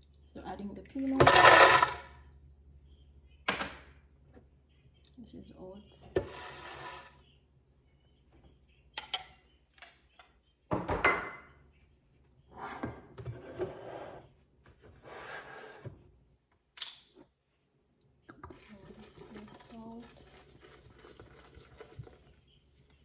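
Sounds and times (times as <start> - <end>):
oats poured into blender jar: 6.2 - 7.2, 18.5 - 22.4
bright clink: 16.8 - 17.2.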